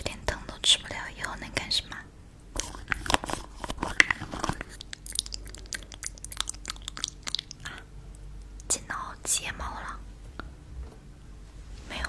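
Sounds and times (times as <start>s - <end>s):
crunchy crackling and clicking: 2.6s - 8.8s.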